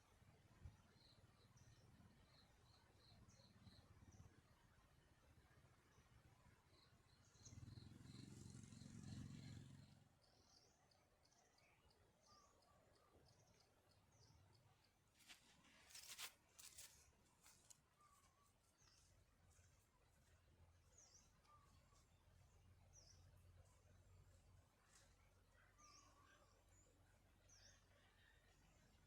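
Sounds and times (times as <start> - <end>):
small birds chirping: 0.6 - 4.7, 5.5 - 29.0
crackles and rustles: 15.1 - 19.6.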